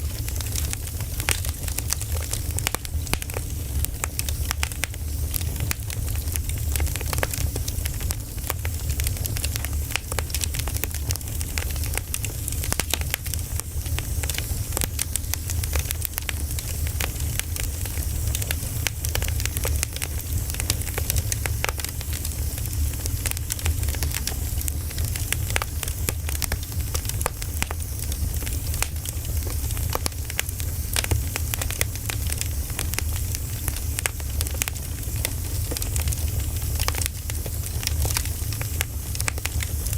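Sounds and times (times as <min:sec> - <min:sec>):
fire crackles and pops: 0:00.0 - 0:39.9
firewood burning: 0:00.0 - 0:39.9.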